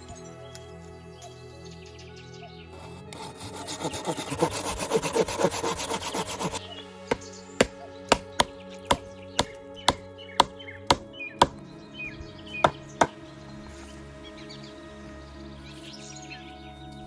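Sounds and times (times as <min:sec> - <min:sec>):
background music: 0:00.0 - 0:17.0
hand saw cutting wood: 0:02.8 - 0:06.6
chopping strikes on wood: 0:07.1 - 0:11.6, 0:12.6 - 0:13.2.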